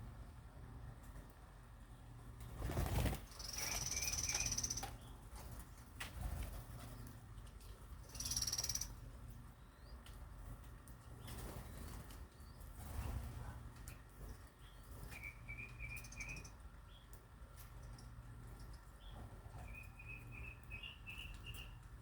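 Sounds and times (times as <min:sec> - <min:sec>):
wings fluttering: 0:02.4 - 0:09.0, 0:10.0 - 0:16.5
small birds chirping: 0:02.7 - 0:22.0.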